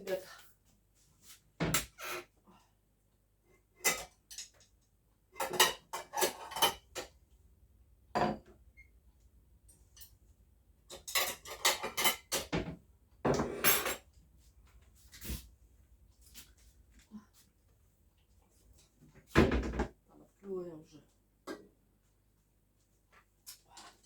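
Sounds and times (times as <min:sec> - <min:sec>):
dishes and cutlery clinking: 0:03.8 - 0:04.7, 0:05.4 - 0:07.1, 0:10.9 - 0:14.1.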